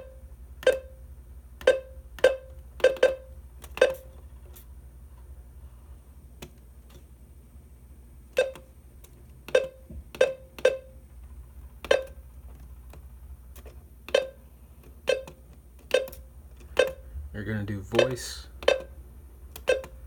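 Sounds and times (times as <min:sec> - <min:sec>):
button clicks with ringing tone: 0:00.6 - 0:00.9, 0:01.6 - 0:04.1, 0:08.4 - 0:08.7, 0:09.5 - 0:10.9, 0:11.9 - 0:12.2, 0:14.1 - 0:14.4, 0:15.1 - 0:16.2, 0:16.8 - 0:17.0, 0:17.9 - 0:19.0, 0:19.6 - 0:20.0.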